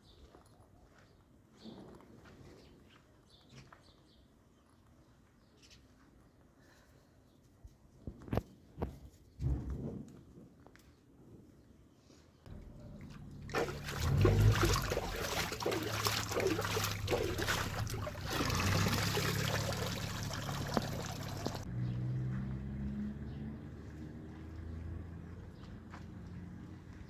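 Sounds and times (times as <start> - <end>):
low steady hum: 12.5 - 21.7
water splashing and trickling: 12.5 - 21.7.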